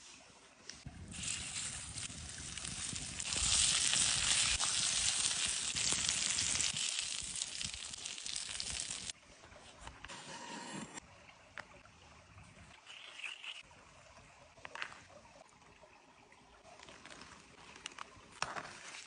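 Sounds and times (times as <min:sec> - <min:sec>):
food sizzling in a pan: 0:01.1 - 0:09.2.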